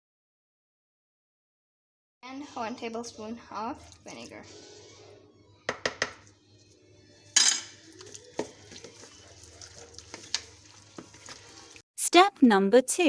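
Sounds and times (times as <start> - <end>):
utensil clinking against bowl: 7.3 - 11.4.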